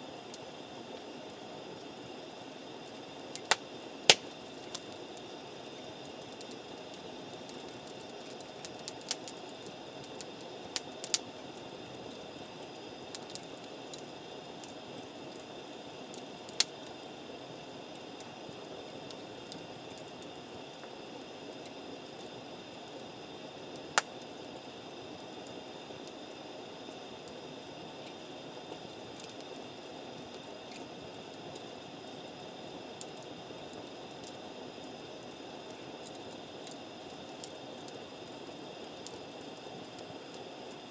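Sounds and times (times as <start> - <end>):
campfire hissing: 0.0 - 40.9
campfire pops: 2.9 - 5.2, 5.8 - 11.4, 16.1 - 17.0, 23.7 - 24.3.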